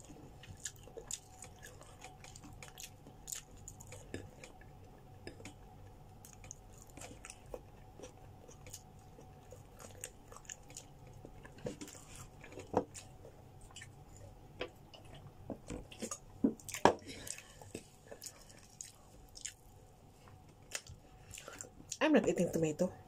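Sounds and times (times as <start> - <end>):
chewing chicken: 0.0 - 22.0
soft mouth clicks and smacks: 0.6 - 5.6.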